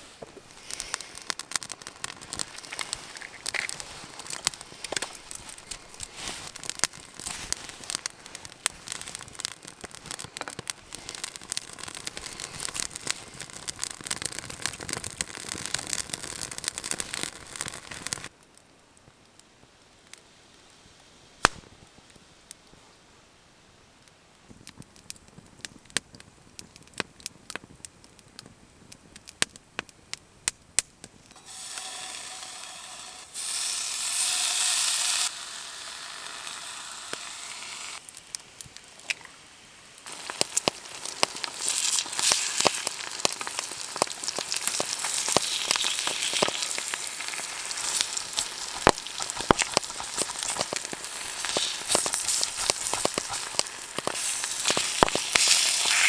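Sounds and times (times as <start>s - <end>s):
bacon and eggs sizzling in pan: 0.0s - 18.3s, 31.3s - 56.0s
campfire crackling and popping: 0.0s - 22.8s, 23.8s - 32.6s, 33.3s - 56.0s.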